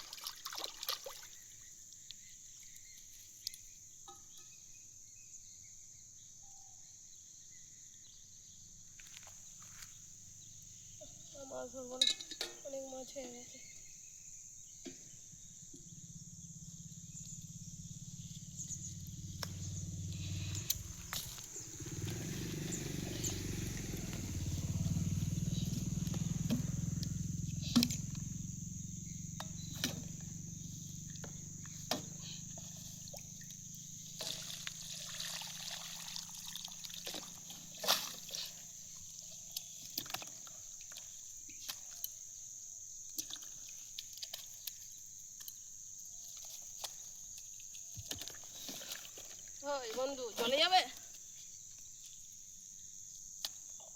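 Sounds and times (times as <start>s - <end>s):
insects shrilling: 15.4s - 52.4s
rush of water: 34.2s - 38.3s.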